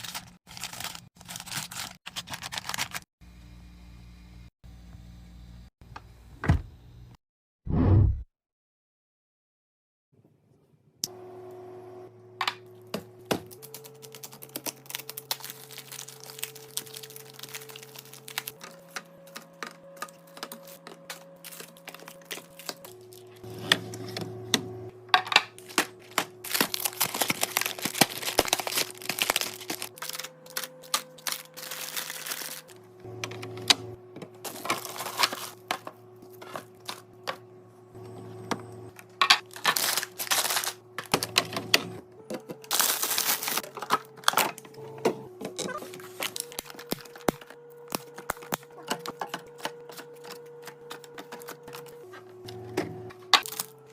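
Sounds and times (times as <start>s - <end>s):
plastic packaging crinkling: 0.0s - 3.1s, 13.5s - 23.4s, 25.6s - 32.8s, 34.4s - 35.7s, 39.4s - 41.2s, 42.6s - 44.4s, 45.8s - 52.0s, 53.4s - 53.8s
soft background music: 15.2s - 24.6s.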